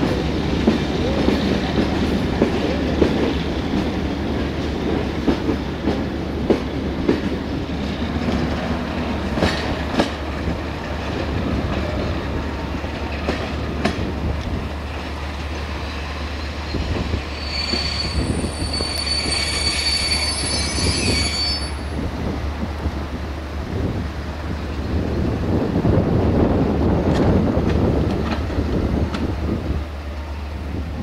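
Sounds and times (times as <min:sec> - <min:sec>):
train wheels clicking over joints: 0:00.0 - 0:19.8
high-pitched wheel squeal: 0:16.4 - 0:22.0.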